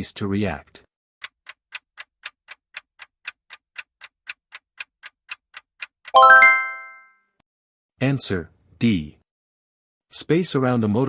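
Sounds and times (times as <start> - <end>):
countdown timer ticking: 3.1 - 7.0
bright ringing chime: 6.2 - 7.0.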